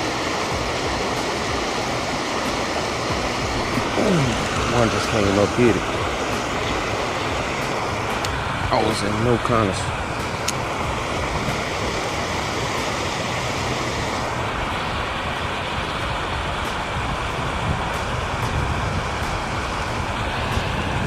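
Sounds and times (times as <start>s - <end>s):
water rushing from outflow: 0.0s - 21.0s.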